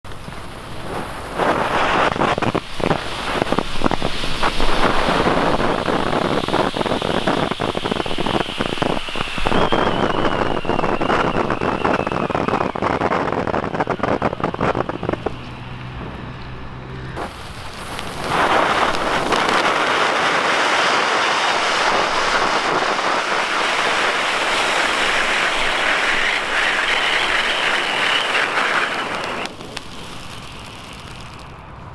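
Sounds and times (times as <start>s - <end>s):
firework fountain hissing and crackling: 0.0s - 16.4s, 17.2s - 31.9s
whistle-like tone falling: 4.4s - 13.5s, 20.9s - 29.5s.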